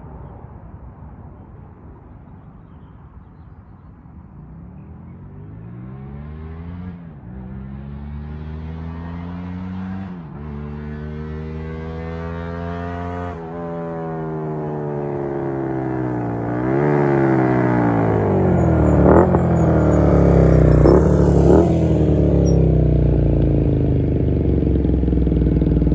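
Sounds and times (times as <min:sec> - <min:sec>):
motorcycle engine revving: 0:05.2 - 0:25.9.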